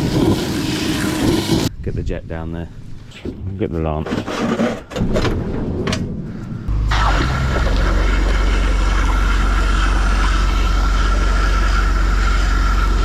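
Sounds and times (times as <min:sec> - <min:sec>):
pressure washer running: 0:06.7 - 0:13.0.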